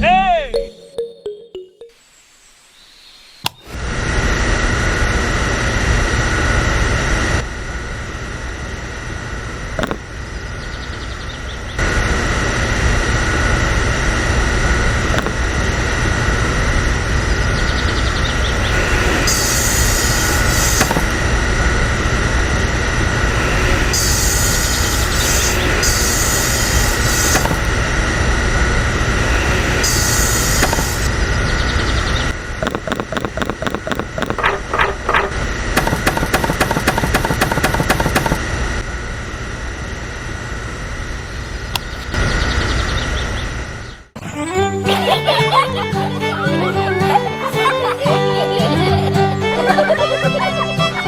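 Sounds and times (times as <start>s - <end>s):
small electric motor whining: 9.6s - 10.1s, 15.0s - 15.5s, 18.2s - 21.5s, 22.9s - 28.0s, 28.8s - 31.2s, 32.6s - 38.4s
high hiss bursts: 19.0s - 21.2s, 23.9s - 27.8s, 29.8s - 31.1s.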